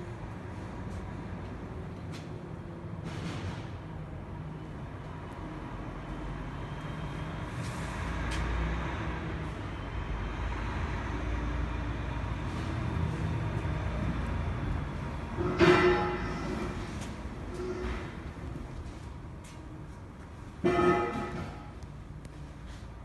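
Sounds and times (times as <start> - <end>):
machinery hum: 0.0 - 23.0
loud ringing metal clank: 15.4 - 16.8, 20.6 - 21.8.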